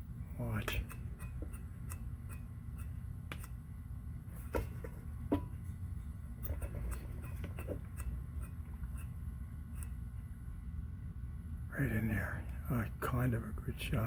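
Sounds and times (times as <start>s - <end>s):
ceiling fan motor humming: 0.0s - 14.0s
fan ticking: 0.4s - 3.6s.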